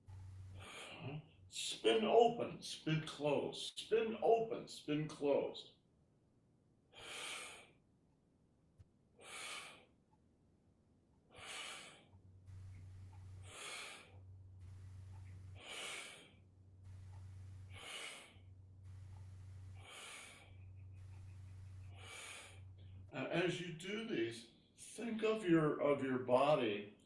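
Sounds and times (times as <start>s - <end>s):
low hum: 0.0s - 1.6s, 12.3s - 23.2s
person breathing hard: 0.1s - 1.4s, 6.9s - 7.8s, 9.2s - 10.0s, 11.3s - 23.1s.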